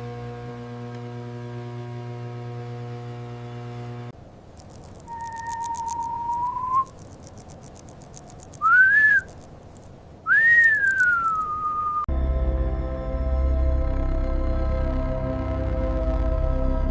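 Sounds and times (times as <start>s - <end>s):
whistled notes: 5.0s - 7.0s, 8.6s - 9.4s, 10.3s - 12.1s.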